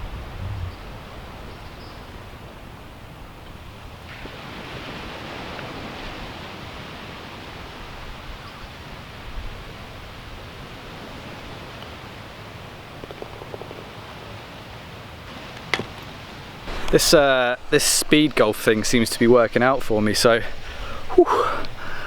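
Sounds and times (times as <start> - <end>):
wind buffeting microphone: 0.0 - 8.5
wind: 0.0 - 22.0
sea surf: 4.0 - 12.6, 14.8 - 21.2.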